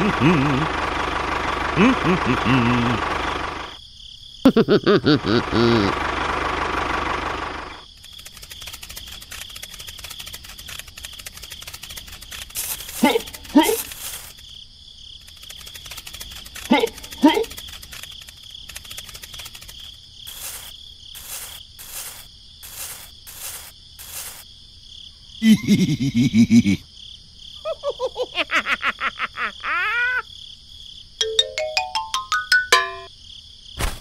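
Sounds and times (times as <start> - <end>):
loud buzzing rattle: 0.0 - 3.8, 5.9 - 14.5, 15.2 - 24.4
cricket-like chirping: 1.8 - 6.0, 7.3 - 34.0
rising stepped notes: 31.2 - 33.1.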